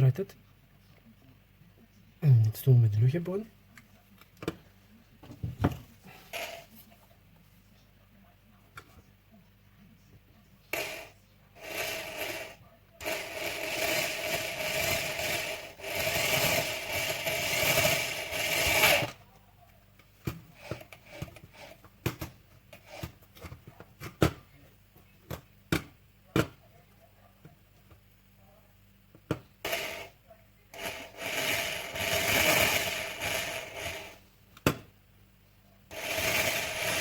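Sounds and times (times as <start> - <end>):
electric drill drilling: 10.8 - 19.2, 29.6 - 30.1, 30.8 - 34.2, 35.9 - 37.0.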